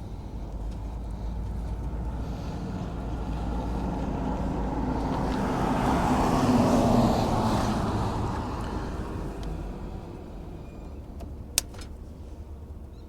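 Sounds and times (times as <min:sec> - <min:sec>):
steady low rumble: 0:00.0 - 0:06.3
vehicle passing by: 0:00.1 - 0:10.5.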